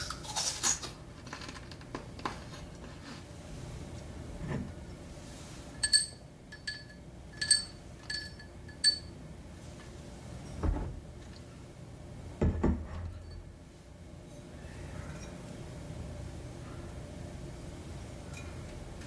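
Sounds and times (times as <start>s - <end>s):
glass clinking: 5.8s - 9.1s.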